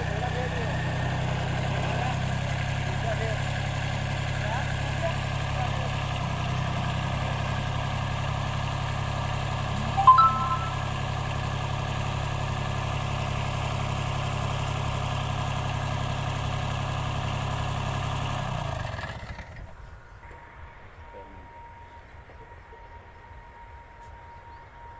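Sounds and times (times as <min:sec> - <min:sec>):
small tractor engine running: 0:00.0 - 0:10.0, 0:10.8 - 0:19.7
short loud ringing tone: 0:09.8 - 0:11.0.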